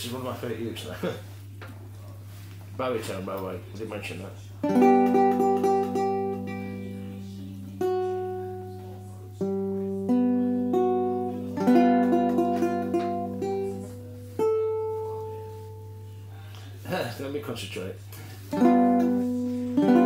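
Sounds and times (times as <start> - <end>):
ukulele chords strummed: 4.6 - 16.1, 18.5 - 20.0.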